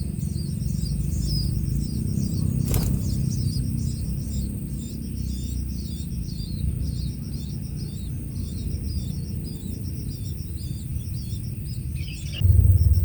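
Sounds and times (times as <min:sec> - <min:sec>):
bird singing chirping phrases: 0:00.0 - 0:12.4
low rumble: 0:12.1 - 0:13.0.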